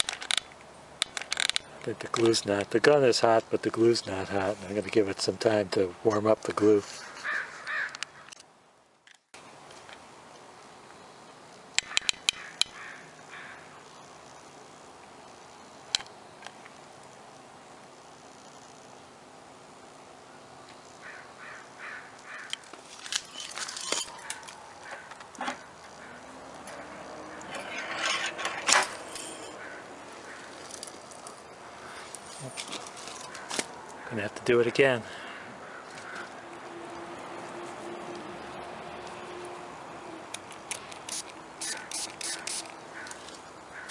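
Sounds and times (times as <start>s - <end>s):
dent puller clicking and ratcheting: 0.0s - 1.6s, 40.3s - 42.8s
sharp clicks: 11.8s - 12.8s, 40.3s - 43.2s.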